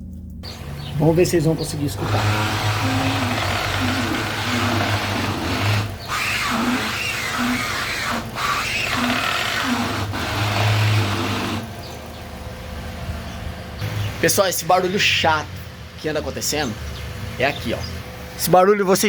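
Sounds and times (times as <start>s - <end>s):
strut bearing creaking and squealing: 0.4s - 12.2s.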